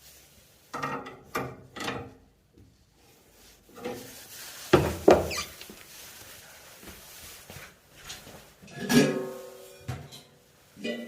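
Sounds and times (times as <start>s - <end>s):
wrench scraping knocks on metal: 0.7s - 2.1s.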